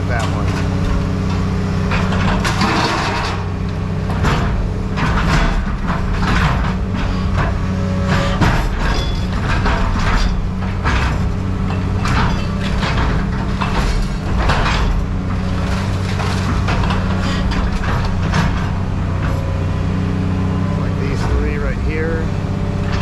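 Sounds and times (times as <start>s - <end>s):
heavy machine engine humming: 0.0s - 23.0s
metal scraping and clanking: 0.0s - 23.0s.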